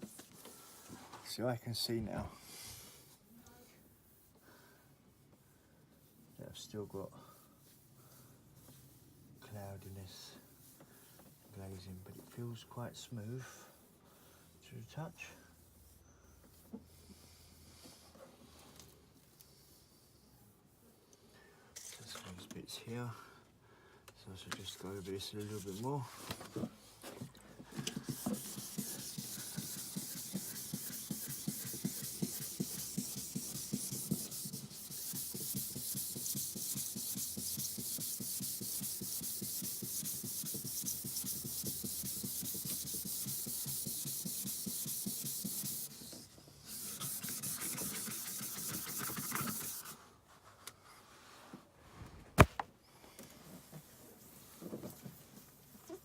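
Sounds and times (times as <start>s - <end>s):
sanding plastic by hand: 24.7s - 26.0s, 27.7s - 50.0s.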